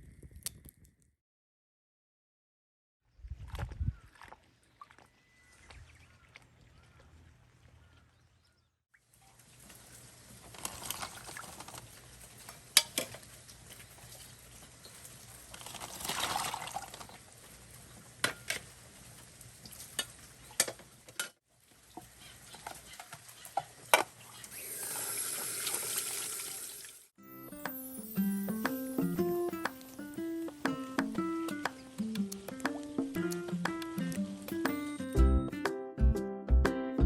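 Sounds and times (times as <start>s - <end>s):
water pouring: 9.0s - 20.6s, 23.8s - 27.1s.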